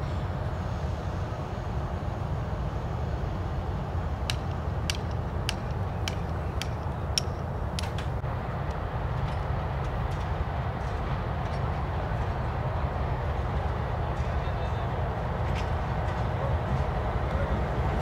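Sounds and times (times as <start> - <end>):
locomotive engine rumbling: 0.0 - 18.0
sharp regular clicks: 4.3 - 8.2.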